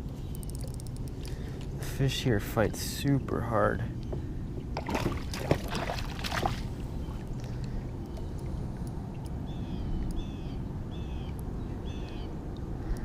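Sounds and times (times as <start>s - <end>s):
bird chirping: 0.2s - 1.0s
fish splashing in water: 4.8s - 8.5s.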